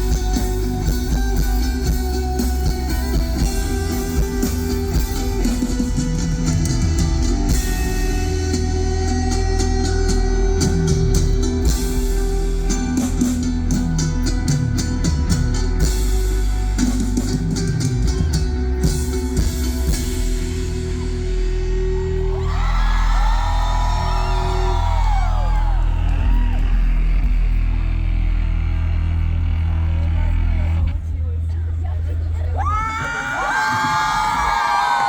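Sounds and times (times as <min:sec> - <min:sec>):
live rock band playing: 0:00.0 - 0:31.0
crowd cheering and whooping: 0:21.6 - 0:28.2, 0:32.5 - 0:35.0.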